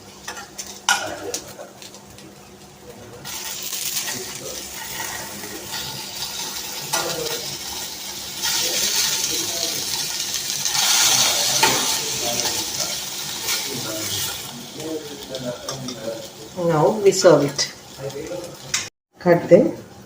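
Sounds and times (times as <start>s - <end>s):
meat sizzling in a pan: 3.2s - 18.9s.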